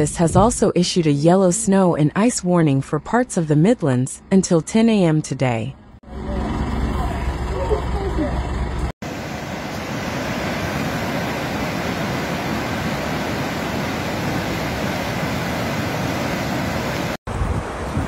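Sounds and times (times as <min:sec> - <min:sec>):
steady rushing noise: 0:09.0 - 0:18.0.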